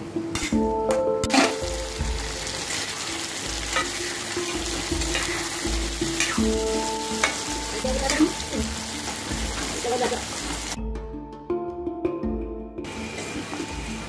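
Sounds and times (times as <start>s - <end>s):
spatula scraping pan: 1.3s - 1.7s
food sizzling in oil: 1.3s - 10.8s, 12.9s - 14.0s.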